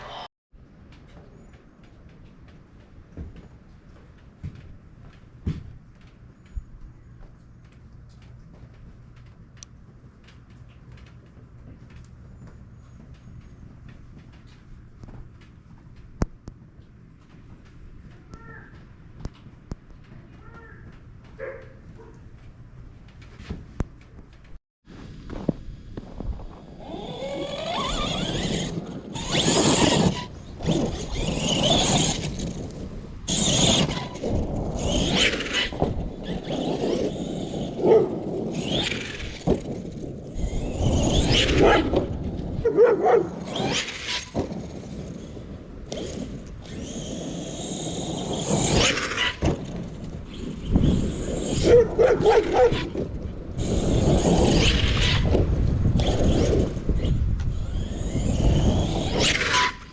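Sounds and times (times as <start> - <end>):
wheels spinning in snow: 0.0 - 0.3, 24.9 - 59.9
electric motor revving and whining: 26.4 - 42.4, 43.3 - 59.9.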